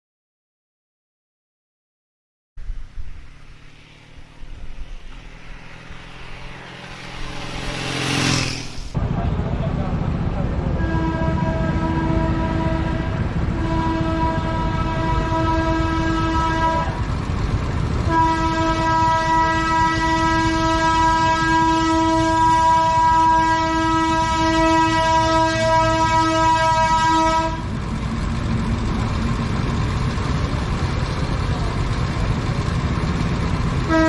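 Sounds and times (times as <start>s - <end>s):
low traffic rumble: 2.6s - 34.0s
horn blasts: 3.2s - 9.0s, 10.8s - 17.1s, 18.0s - 27.8s.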